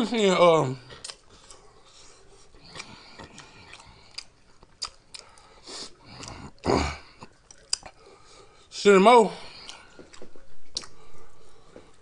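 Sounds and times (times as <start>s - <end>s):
close chewing with mouth clicks: 0.8s - 8.7s, 9.5s - 12.0s
breathy throat sound: 5.2s - 8.2s.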